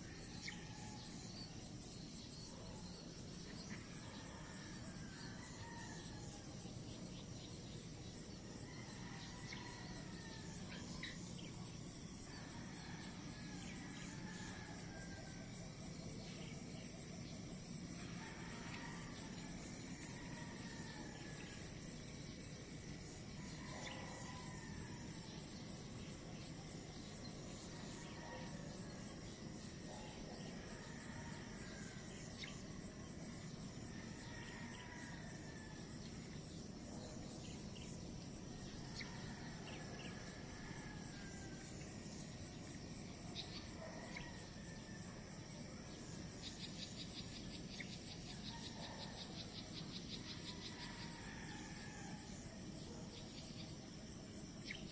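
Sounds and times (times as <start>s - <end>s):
hiss of insects: 0.0s - 54.9s
rapid insect trill: 0.0s - 54.9s.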